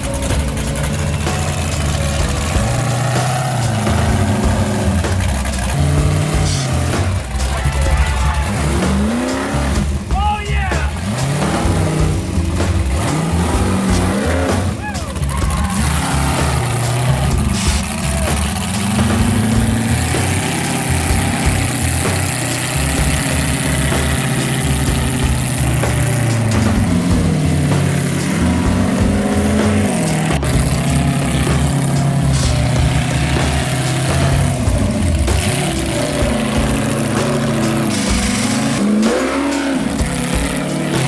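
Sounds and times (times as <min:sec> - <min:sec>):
truck engine revving: 0:00.0 - 0:41.0.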